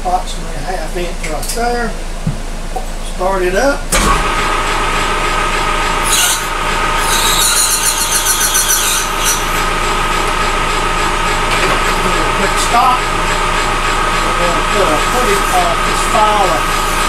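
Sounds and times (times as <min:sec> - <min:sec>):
lathe whining: 0:03.9 - 0:17.0
cut-off blade squealing through plastic: 0:06.0 - 0:09.6.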